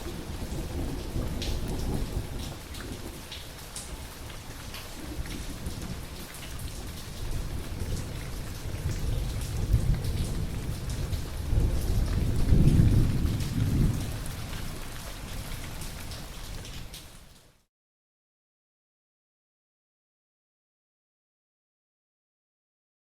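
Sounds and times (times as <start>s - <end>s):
rolling thunder: 0.0s - 4.0s, 5.0s - 15.0s
steady rain: 0.0s - 17.7s.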